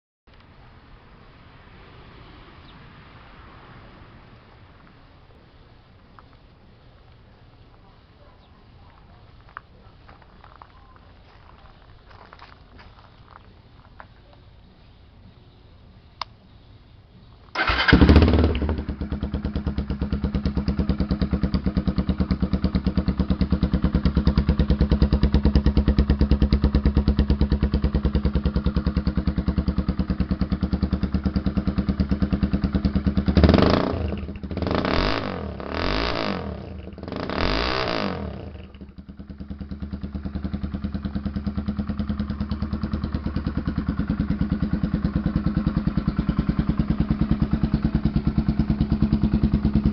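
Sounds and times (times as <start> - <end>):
motorcycle engine starting and idling: 17.4 - 49.9
motorcycle throttle blips: 17.5 - 49.9.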